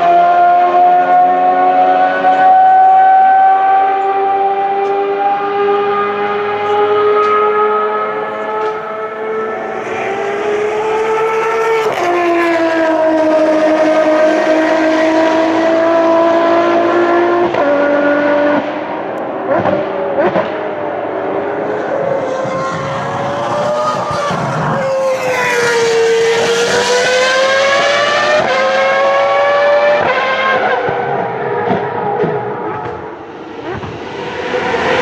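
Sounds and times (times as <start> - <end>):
race car engines passing: 0.0 - 35.0.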